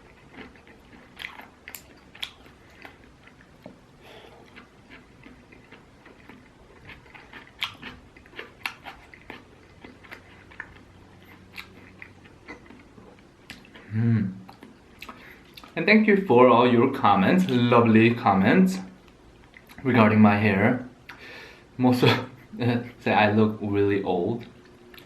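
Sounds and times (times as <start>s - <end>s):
person chewing food: 0.0s - 15.8s, 18.8s - 19.9s, 21.0s - 21.6s, 24.4s - 25.0s.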